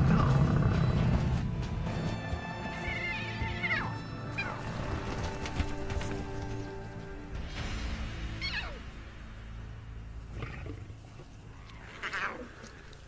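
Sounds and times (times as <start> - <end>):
background music with held notes: 0.0 - 10.8
lion cubs crying: 2.6 - 5.5, 8.3 - 9.0, 10.3 - 13.0.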